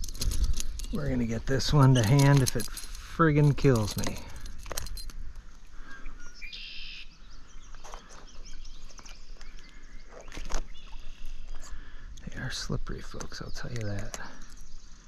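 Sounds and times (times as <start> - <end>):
bird call: 5.8 - 11.8.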